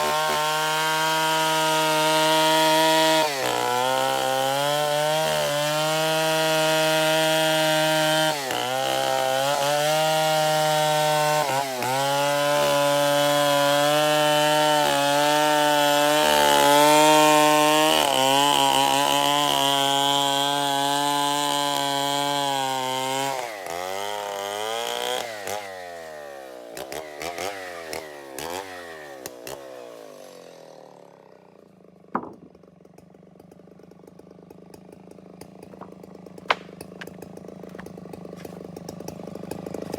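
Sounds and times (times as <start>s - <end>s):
chainsaw cutting wood: 0.0s - 39.9s
sharp knock: 32.2s - 32.5s.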